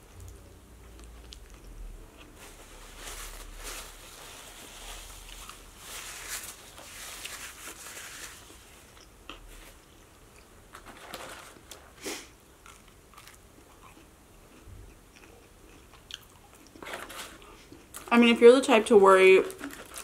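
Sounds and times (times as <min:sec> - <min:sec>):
paper napkin rustling: 0:02.2 - 0:08.9
chewing with wet mouth clicks: 0:12.6 - 0:16.8.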